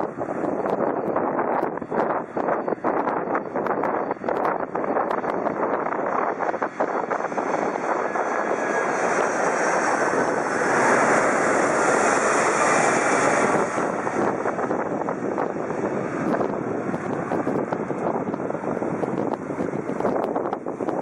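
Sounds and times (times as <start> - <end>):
jet airliner passing overhead: 0.0 - 21.0.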